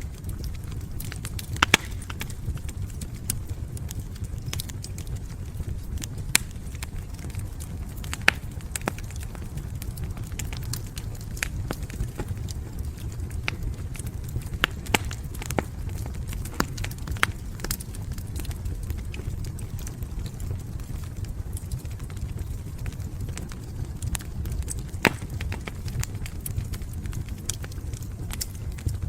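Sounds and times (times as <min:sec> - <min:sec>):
fire crackling and popping: 0:00.0 - 0:29.0.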